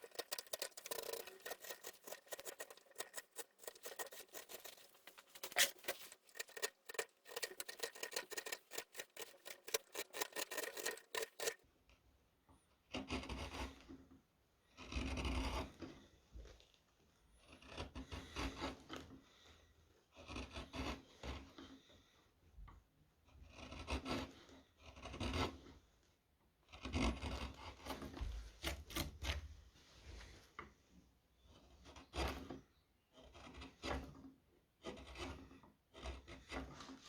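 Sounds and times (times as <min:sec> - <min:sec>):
gouge cutting wood: 0:00.0 - 0:11.6, 0:33.2 - 0:34.1, 0:34.8 - 0:37.0.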